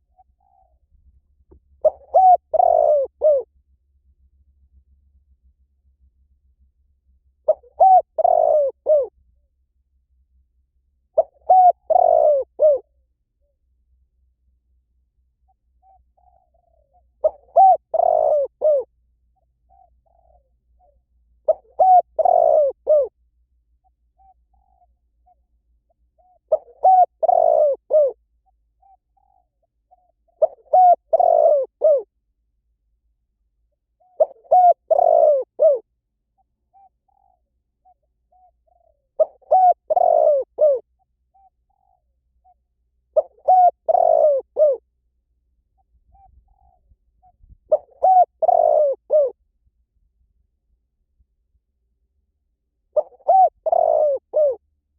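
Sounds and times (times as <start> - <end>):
dove cooing: 0.0 - 0.8, 1.8 - 3.5, 7.4 - 9.2, 11.1 - 12.9, 15.7 - 23.2, 24.2 - 28.2, 28.8 - 32.1, 34.0 - 44.8, 45.8 - 49.4, 52.9 - 54.6.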